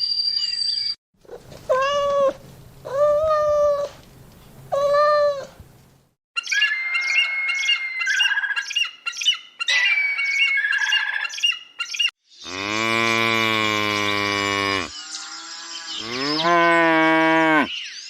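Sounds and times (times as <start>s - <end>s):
cat meowing: 1.3s - 4.0s, 4.7s - 5.5s
high warbling animal call: 6.4s - 8.9s
cow mooing: 12.4s - 14.9s, 16.0s - 17.7s.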